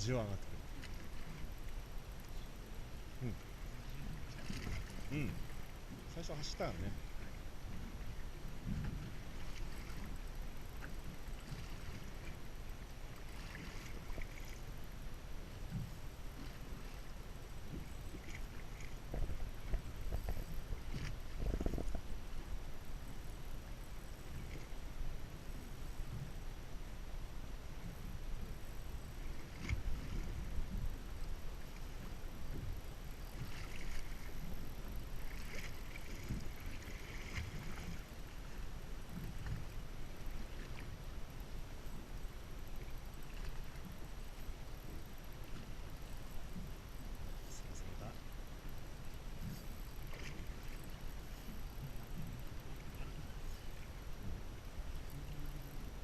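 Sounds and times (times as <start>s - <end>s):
boat engine rumble: 0.0s - 56.0s
water noise: 0.0s - 56.0s
wind: 0.0s - 56.0s
faint splashes: 3.2s - 7.4s, 13.1s - 14.7s, 33.3s - 34.5s, 35.2s - 41.0s, 49.4s - 55.9s
wind buffeting microphone: 19.0s - 22.3s.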